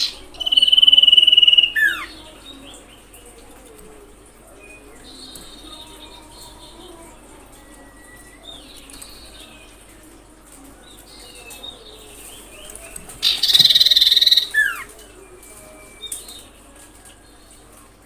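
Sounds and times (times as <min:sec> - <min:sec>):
bird whistling and trilling: 0:00.0 - 0:02.1, 0:13.2 - 0:14.9.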